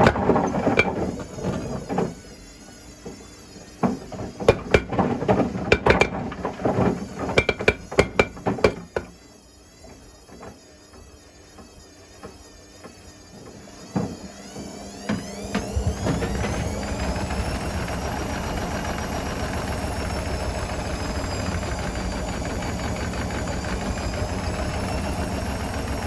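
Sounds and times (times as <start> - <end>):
bricks knocking in washing machine drum: 0.0 - 1.8, 4.5 - 9.2.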